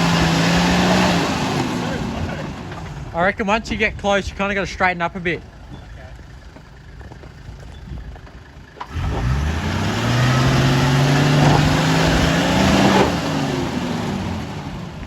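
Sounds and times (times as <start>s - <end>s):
engine revving under load: 0.0s - 3.1s, 8.8s - 15.0s.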